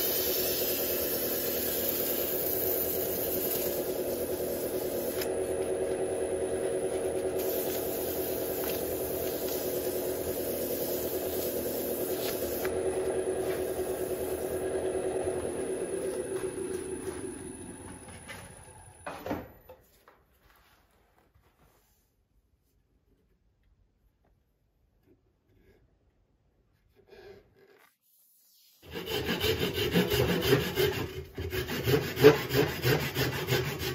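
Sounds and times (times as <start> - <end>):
lathe hum: 0.0 - 19.1
wood scraping on lathe: 0.2 - 18.2, 28.8 - 33.9.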